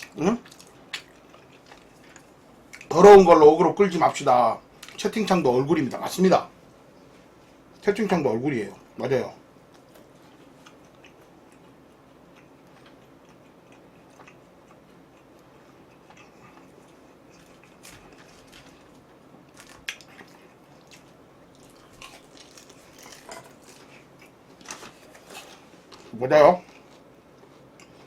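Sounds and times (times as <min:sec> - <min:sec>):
person chewing food: 0:00.0 - 0:02.9, 0:09.7 - 0:28.0
mouth clicks and crunches: 0:00.0 - 0:03.0, 0:09.7 - 0:27.0.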